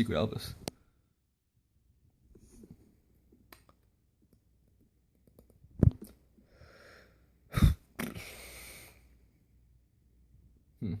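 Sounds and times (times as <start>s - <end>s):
soft breathy noise: 6.3s - 9.6s.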